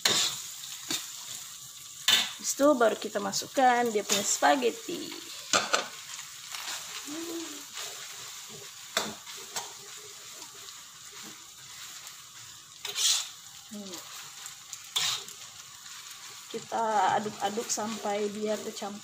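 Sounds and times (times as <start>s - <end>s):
metal spatula scraping pan: 0.0s - 0.4s, 7.7s - 15.5s
spaghetti sizzling in oil: 0.0s - 19.0s.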